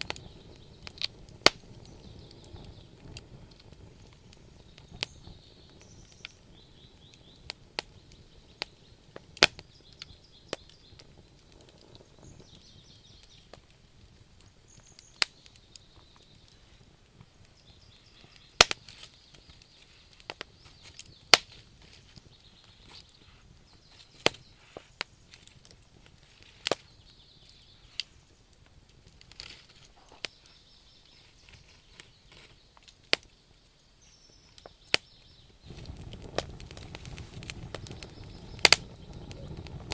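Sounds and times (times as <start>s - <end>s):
campfire logs crackling: 0.0s - 39.9s
fire pops and snaps: 0.0s - 39.9s
soft fire hiss: 0.0s - 39.9s.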